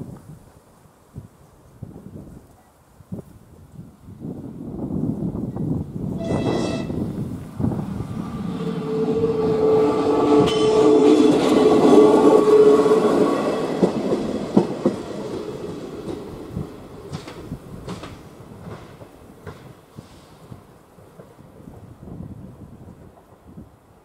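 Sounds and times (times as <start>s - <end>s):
diesel train engine drone: 5.4s - 20.2s
train horn blast: 6.1s - 7.1s, 8.6s - 13.7s
train wheels clicking over rail joints: 10.1s - 21.7s.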